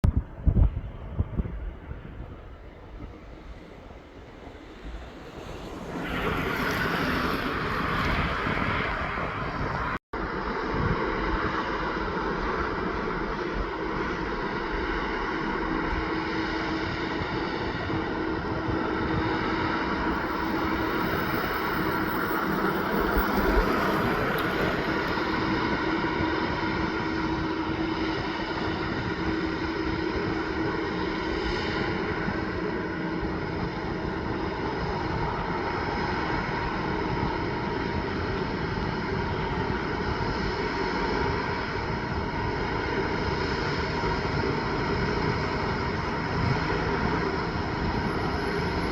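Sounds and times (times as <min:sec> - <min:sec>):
truck engine droning: 0:19.3 - 0:31.1.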